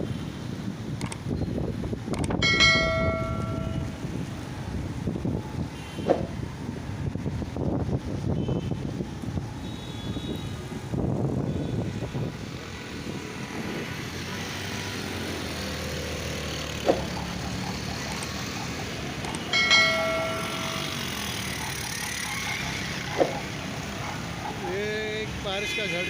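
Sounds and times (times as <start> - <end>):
wind buffeting microphone: 0.0 - 21.9
road traffic: 0.0 - 26.0
vehicle horn blast: 5.7 - 6.3, 9.6 - 10.6.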